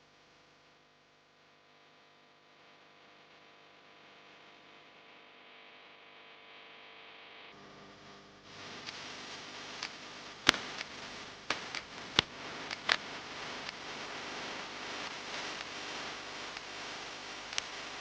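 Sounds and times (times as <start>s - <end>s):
steady hiss: 7.6s - 18.0s
sharp clicks: 9.8s - 13.8s.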